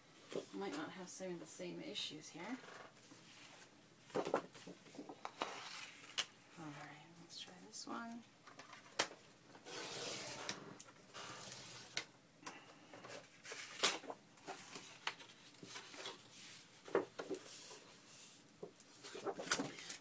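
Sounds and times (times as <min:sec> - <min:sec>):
paper sliding: 0:09.6 - 0:10.6.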